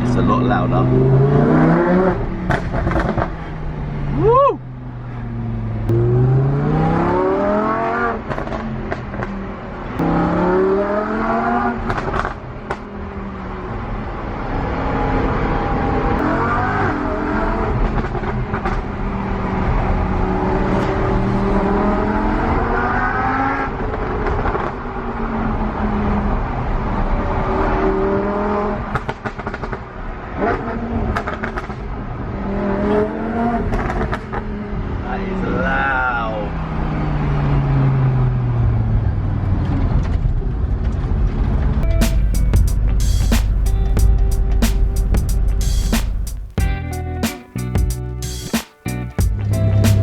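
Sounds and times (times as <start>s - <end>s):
exhaust cracks: 0.0s - 4.2s, 39.8s - 50.0s
sports car engine accelerating: 0.0s - 35.7s, 36.4s - 50.0s.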